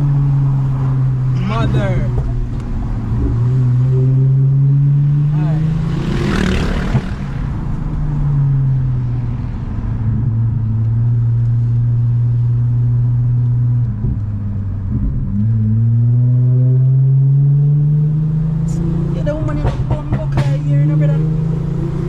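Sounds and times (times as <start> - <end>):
car exhaust droning: 0.0 - 17.2.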